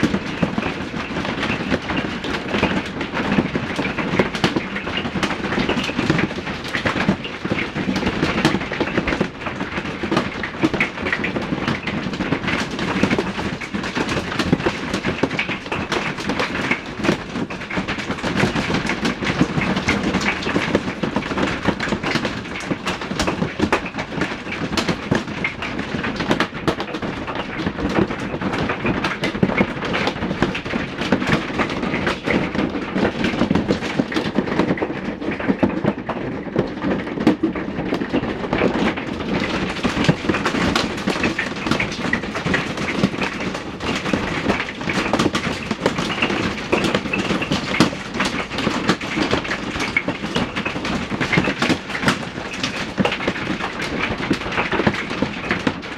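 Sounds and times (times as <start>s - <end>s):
hail clattering on hard surfaces: 0.0s - 55.9s.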